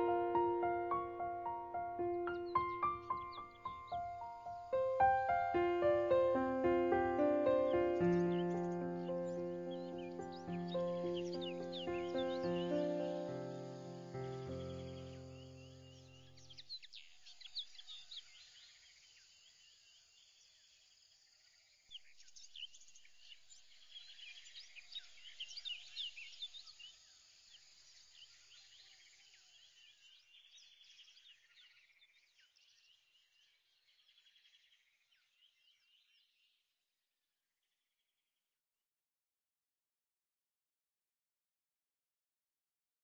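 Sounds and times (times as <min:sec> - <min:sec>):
birds chirping and trilling: 0:00.0 - 0:18.8, 0:21.9 - 0:36.5.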